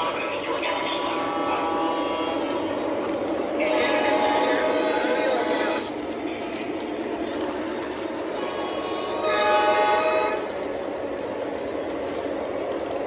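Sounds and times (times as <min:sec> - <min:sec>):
model train rumbling: 0:00.0 - 0:13.0
model train horn: 0:00.9 - 0:02.6, 0:03.5 - 0:05.9, 0:08.4 - 0:10.6.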